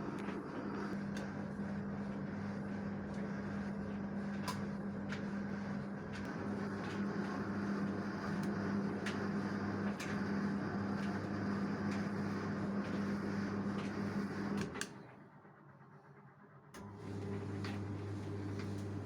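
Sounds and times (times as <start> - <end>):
washing machine humming: 0.0 - 19.0.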